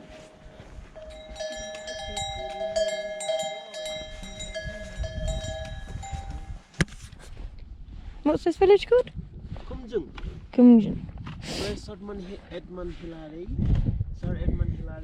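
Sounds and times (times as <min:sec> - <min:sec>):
metal animal bells clanking: 0:00.9 - 0:06.6.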